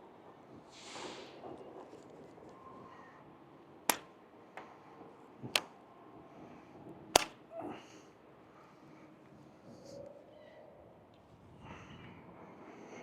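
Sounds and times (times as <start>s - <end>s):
sharp clicks: 3.9s - 4.1s, 7.2s - 7.4s.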